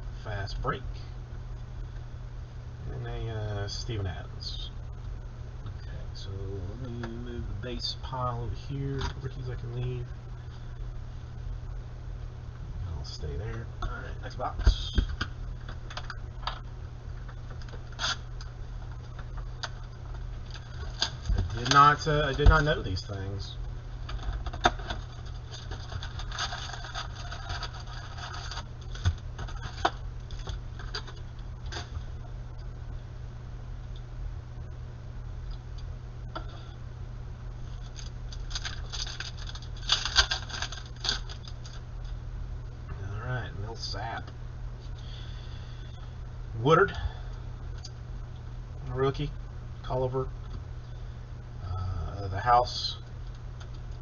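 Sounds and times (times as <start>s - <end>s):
steady low hum: 0.0s - 54.0s
card packs rustling: 20.4s - 23.0s, 24.2s - 31.9s, 37.7s - 41.8s
plastic wrapper crinkling and tearing: 24.2s - 31.2s, 37.7s - 41.8s.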